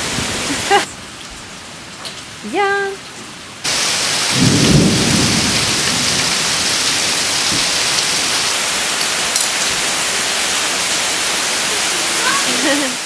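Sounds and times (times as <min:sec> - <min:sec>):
heavy rain hissing: 0:00.0 - 0:13.0
runoff pouring off roof: 0:03.6 - 0:13.0.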